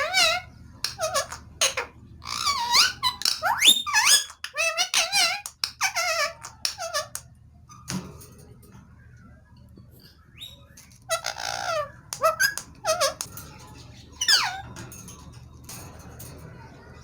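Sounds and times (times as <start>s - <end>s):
parakeet squeaking: 0.0s - 7.2s, 10.4s - 14.8s.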